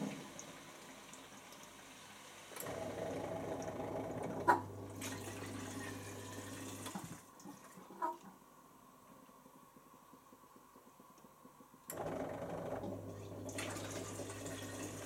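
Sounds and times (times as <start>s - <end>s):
water rushing in dishwasher: 0.0s - 8.2s, 12.0s - 15.0s.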